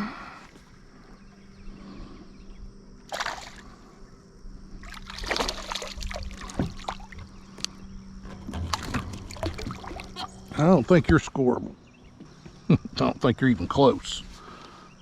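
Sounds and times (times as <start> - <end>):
water splashing around a kayak: 3.1 - 3.8, 4.8 - 11.1
water dripping: 5.2 - 11.0.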